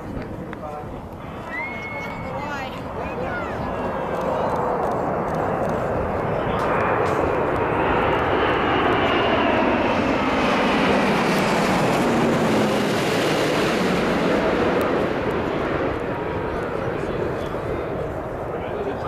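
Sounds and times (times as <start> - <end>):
jet plane passing close: 0.0 - 19.0.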